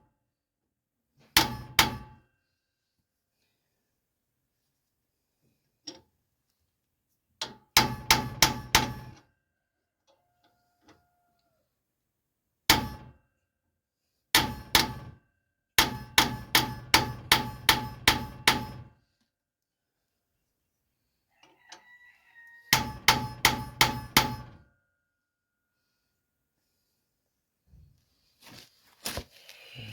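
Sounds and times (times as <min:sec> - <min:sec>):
hammer clanging on steel: 0:01.4 - 0:02.2, 0:07.8 - 0:09.2, 0:15.8 - 0:18.9, 0:22.8 - 0:24.6.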